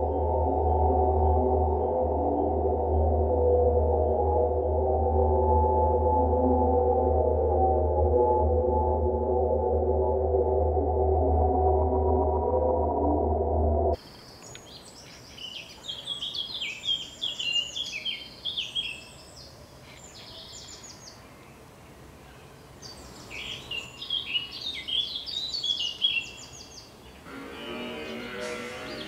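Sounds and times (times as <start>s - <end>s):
faint steady hiss: 14.0s - 27.8s
songbird chirping: 14.0s - 29.0s.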